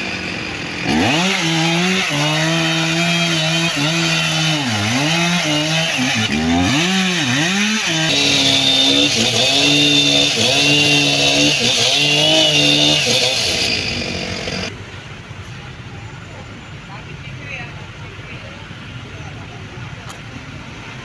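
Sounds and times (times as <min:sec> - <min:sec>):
chainsaw cutting through wood: 0:00.0 - 0:14.7.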